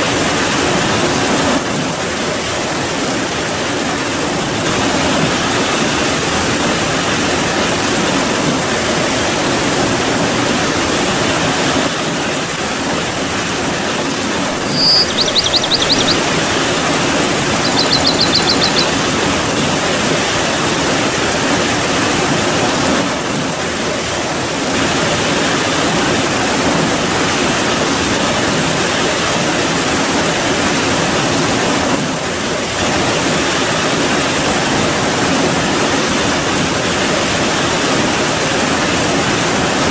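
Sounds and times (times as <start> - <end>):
high-pitched trills: 14.6 - 19.2.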